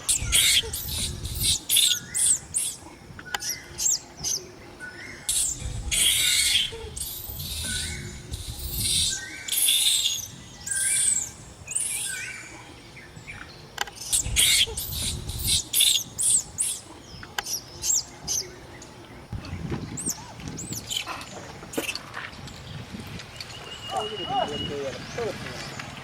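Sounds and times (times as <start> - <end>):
high-pitched chirping calls: 0.0 - 18.7
low rumble: 5.5 - 9.2.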